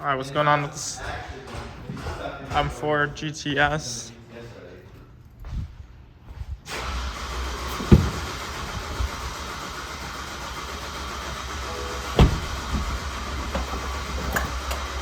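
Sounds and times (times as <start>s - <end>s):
car engine humming: 6.8s - 15.0s
sharp knocks: 7.8s - 8.8s, 12.1s - 14.8s.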